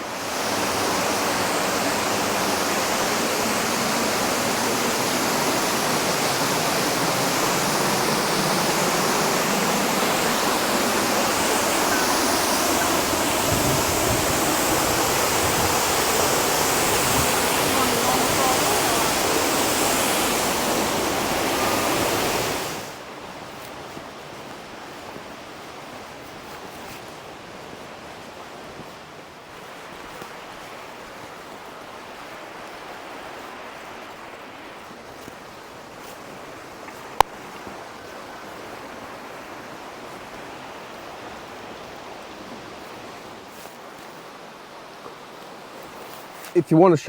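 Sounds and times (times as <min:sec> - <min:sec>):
waterfall rushing: 0:00.0 - 0:23.1, 0:46.5 - 0:47.0.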